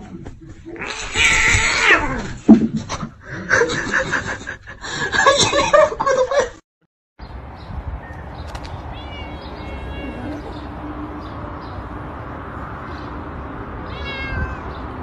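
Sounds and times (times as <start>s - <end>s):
cat yowling: 0.8s - 2.3s, 8.9s - 10.6s, 13.9s - 14.8s
choppy laughter-like sounds: 2.8s - 6.6s.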